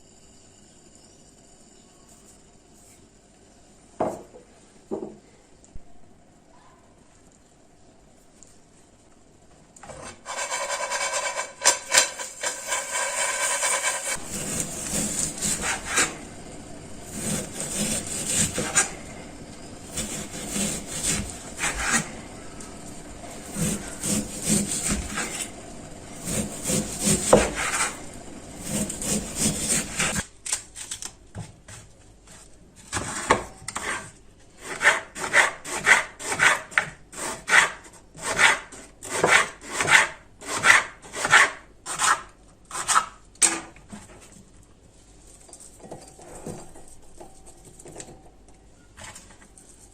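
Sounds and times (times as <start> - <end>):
knife cutting on wooden board: 17.1 - 19.0, 19.9 - 22.1, 26.2 - 28.0.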